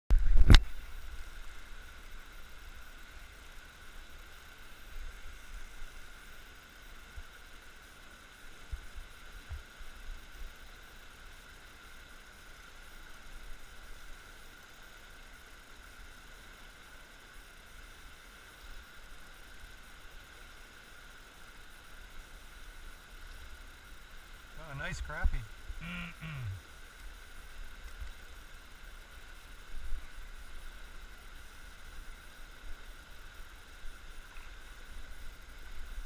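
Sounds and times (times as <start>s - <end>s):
faint hiss: 0.1s - 36.0s
thin high tone: 24.6s - 26.6s.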